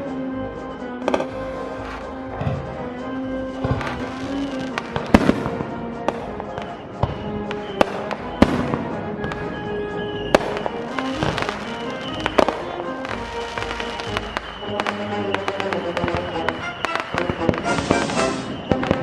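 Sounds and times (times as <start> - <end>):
music with held notes: 0.0 - 19.0
fireworks bangs: 1.0 - 19.0.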